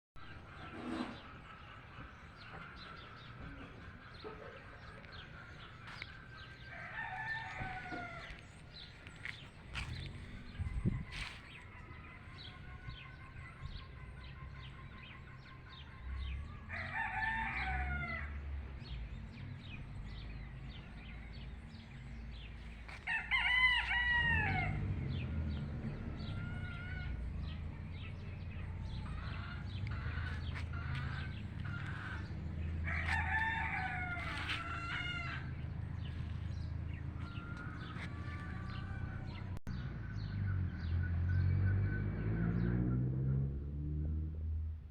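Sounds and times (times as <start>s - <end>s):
chickens clucking: 0.3s - 6.8s, 26.2s - 39.5s
roosters crowing: 0.3s - 9.2s, 9.8s - 18.4s, 22.4s - 39.6s.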